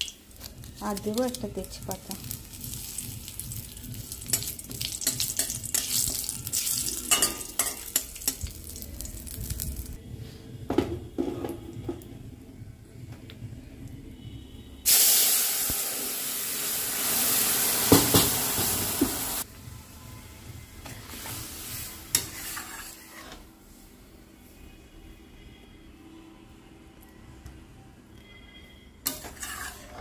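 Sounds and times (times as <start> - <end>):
spices sizzling in hot oil: 0.0 - 10.0, 14.9 - 19.4, 21.1 - 23.4
loud hiss of food hitting oil: 14.9 - 19.4.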